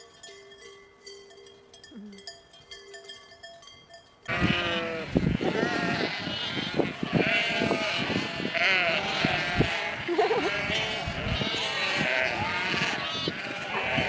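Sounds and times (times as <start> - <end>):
livestock bleating: 4.3 - 14.0.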